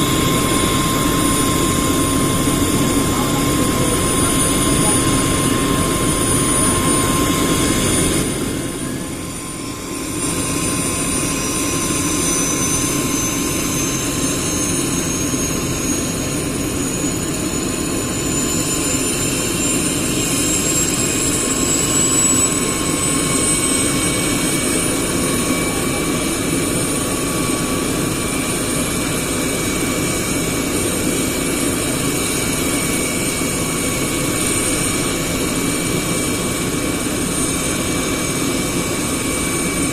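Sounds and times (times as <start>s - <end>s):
helicopter turbine and rotor: 0.0s - 39.9s
high turbine whine: 0.0s - 39.9s.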